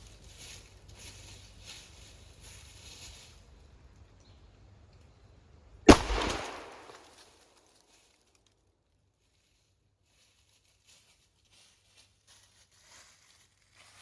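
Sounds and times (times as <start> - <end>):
shotgun shot: 5.9 - 7.2.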